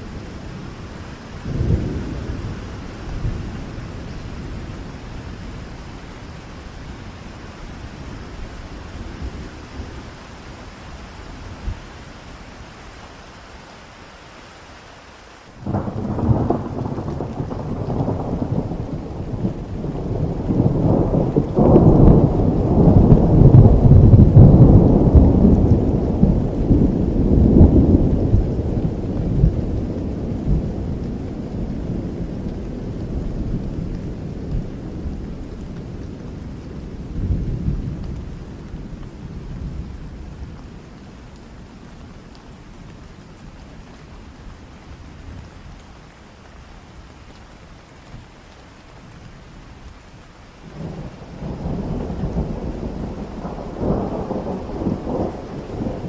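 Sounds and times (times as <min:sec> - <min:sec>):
steady rain: 0:00.0 - 0:56.0
thunder rolling: 0:15.6 - 0:38.2, 0:50.7 - 0:56.0.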